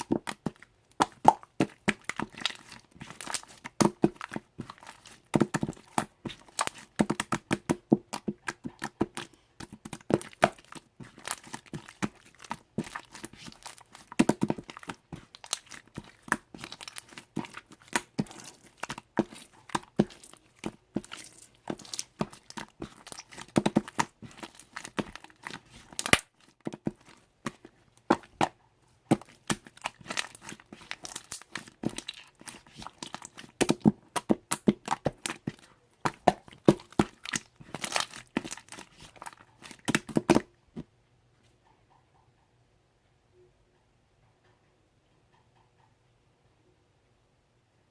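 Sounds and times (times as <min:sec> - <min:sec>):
slime popping and crackling: 0:00.0 - 0:40.5.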